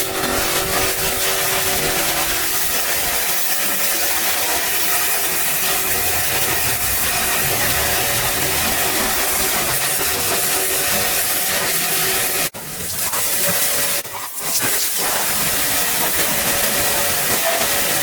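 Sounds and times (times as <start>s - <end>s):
machine hum: 0.0s - 12.5s.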